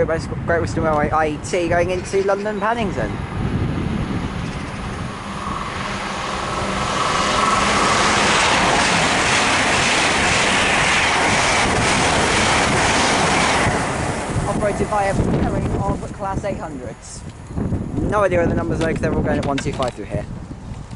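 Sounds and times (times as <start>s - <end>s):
train rushing past: 1.2s - 16.2s.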